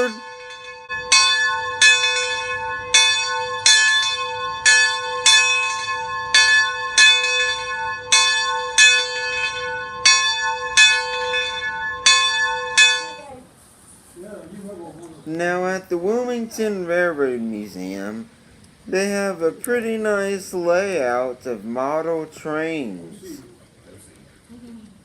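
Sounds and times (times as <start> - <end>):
locomotive bell ringing: 0.0 - 13.3.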